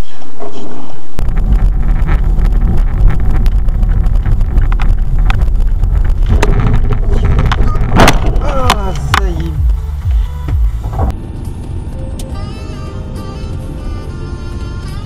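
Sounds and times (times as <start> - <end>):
low road rumble: 0.0 - 15.0
wind buffeting microphone: 1.1 - 11.2
sharp clicks and knocks: 1.3 - 11.1.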